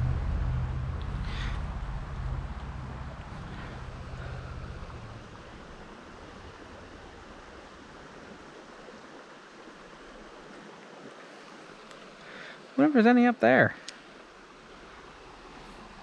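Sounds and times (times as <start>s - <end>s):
low rumble: 0.0s - 8.1s
creek water rushing: 0.0s - 16.0s.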